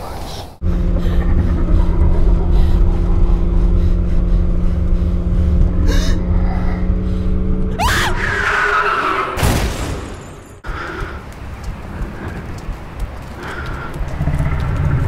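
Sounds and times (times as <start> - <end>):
rush of noise: 0.0 - 9.4
car engine rumbling: 0.5 - 9.4.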